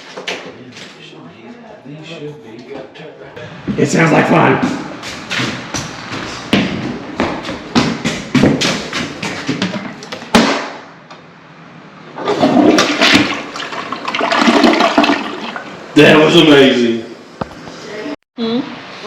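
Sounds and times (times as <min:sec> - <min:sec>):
toilet flushing: 0:12.2 - 0:16.4.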